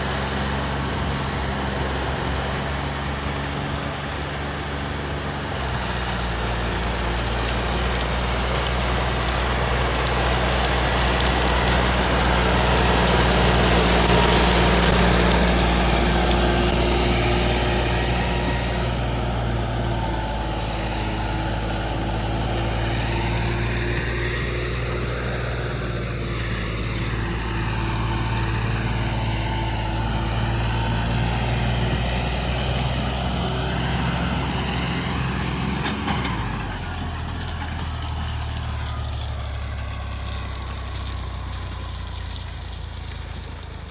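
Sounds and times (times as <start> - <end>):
tractor diesel engine under load: 0.0 - 43.9.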